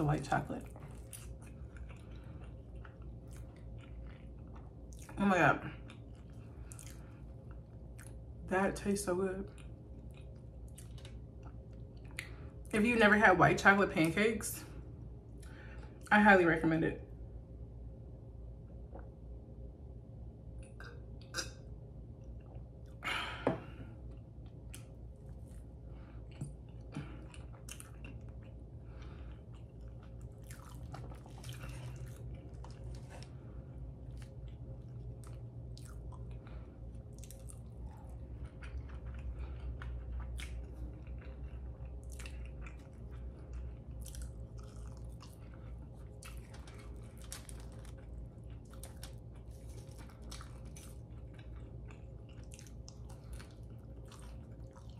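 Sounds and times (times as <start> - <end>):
chewing and biting food: 0.3 - 8.5, 9.5 - 12.7, 24.1 - 54.9.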